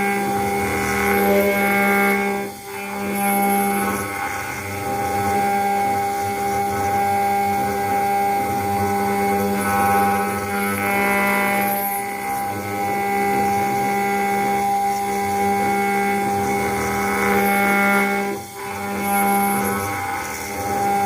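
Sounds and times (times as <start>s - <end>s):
router spindle whine: 0.0s - 21.0s.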